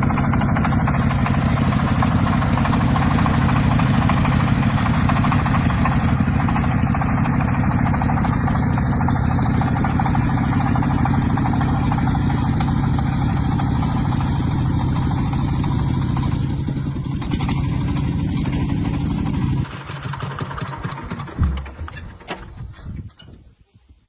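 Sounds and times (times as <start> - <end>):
tractor engine running: 0.0 - 23.3
knocks: 21.3 - 22.5
loud thump: 21.4 - 22.6.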